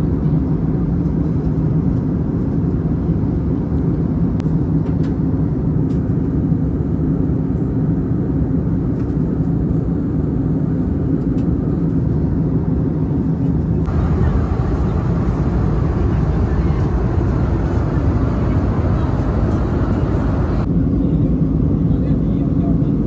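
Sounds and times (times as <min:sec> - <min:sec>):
jet engine cabin rumble: 0:13.0 - 0:20.7.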